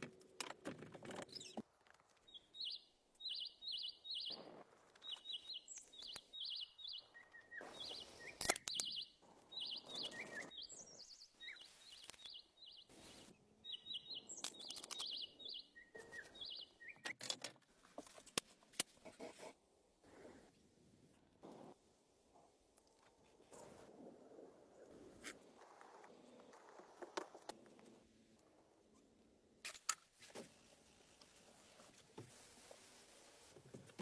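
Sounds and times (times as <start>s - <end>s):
small bird chirping: 2.2s - 17.2s.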